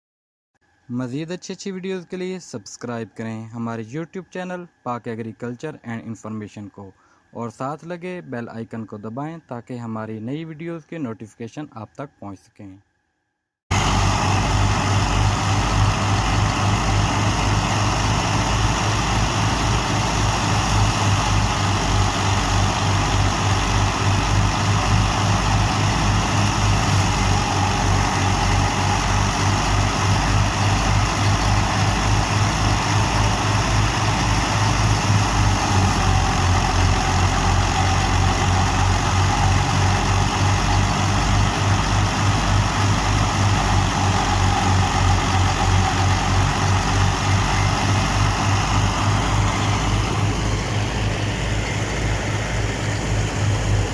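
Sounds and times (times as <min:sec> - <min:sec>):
thresher rushing noise: 0:13.7 - 0:53.9
tractor diesel engine running: 0:13.7 - 0:53.9.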